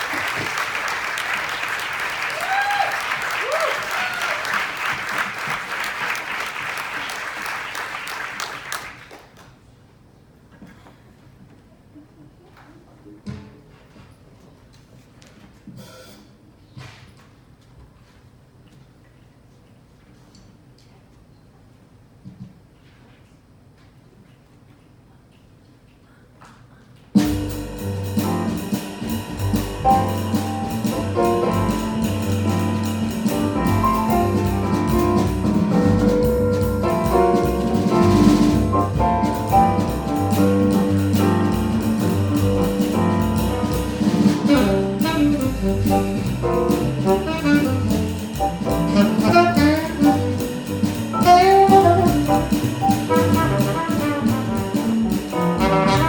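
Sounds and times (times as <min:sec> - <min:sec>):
live jazz band playing: 0:27.2 - 0:56.0.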